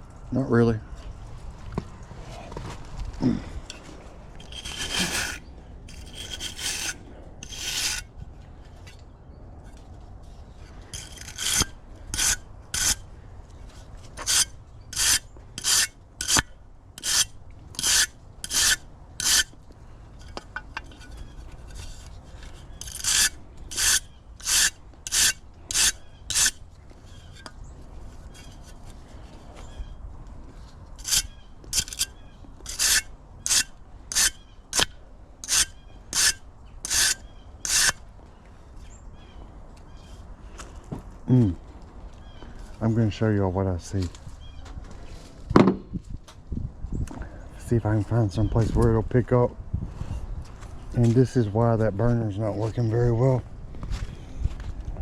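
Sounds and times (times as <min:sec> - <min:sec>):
scraping strokes on a burner: 0:04.4 - 0:08.1, 0:10.9 - 0:13.0, 0:14.2 - 0:19.6, 0:20.2 - 0:27.5, 0:31.0 - 0:38.0.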